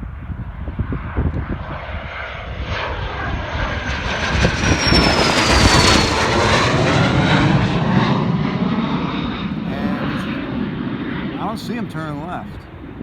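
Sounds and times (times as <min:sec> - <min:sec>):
jet engines roaring at takeoff: 0:00.0 - 0:13.0
wind buffeting microphone: 0:00.0 - 0:13.0.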